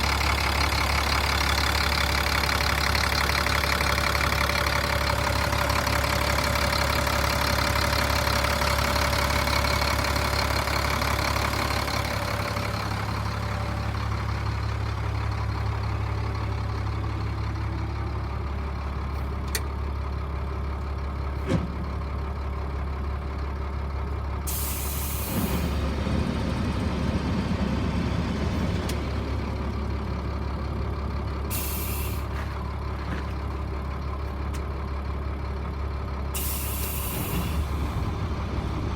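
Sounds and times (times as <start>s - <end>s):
diesel truck engine idling: 0.0s - 38.9s
air brake hiss: 24.5s - 25.8s, 31.5s - 32.4s, 36.4s - 37.8s.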